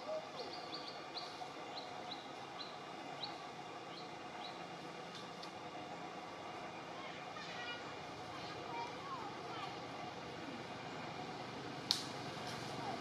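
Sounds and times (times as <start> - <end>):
outdoor background noise: 0.0 - 13.0
bird chirping: 0.4 - 4.6.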